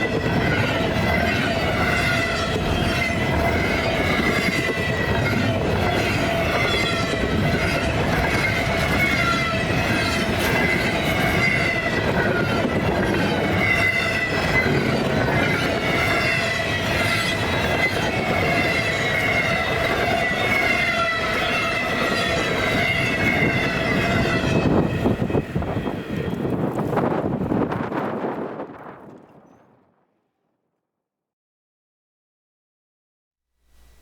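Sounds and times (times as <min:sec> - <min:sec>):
wheels squealing: 0:00.0 - 0:27.0
train cars rumbling: 0:00.0 - 0:29.8.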